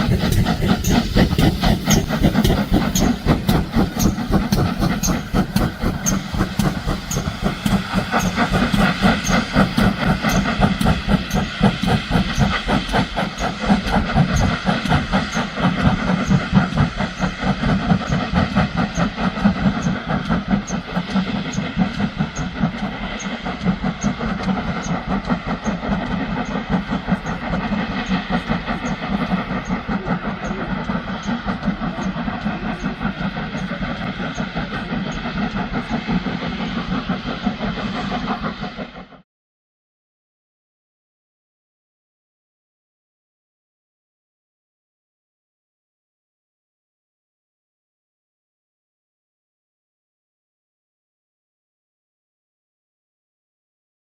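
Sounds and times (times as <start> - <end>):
steam hiss: 0.0 - 39.2
steam locomotive beat: 0.0 - 39.2.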